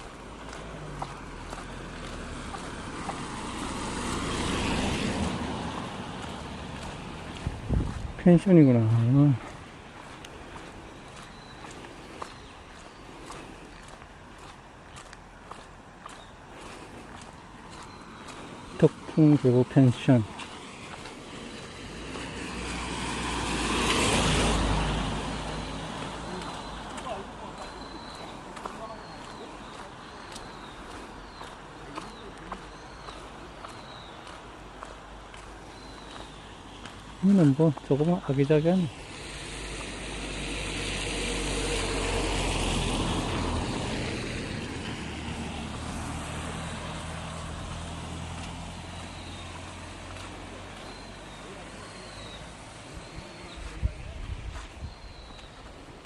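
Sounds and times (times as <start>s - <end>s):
motor vehicle passing by: 0.0s - 56.0s.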